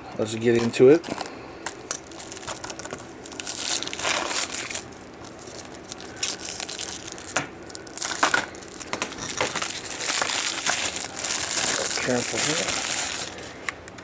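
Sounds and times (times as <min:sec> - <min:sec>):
plastic wrap crinkling: 0:00.4 - 0:13.7.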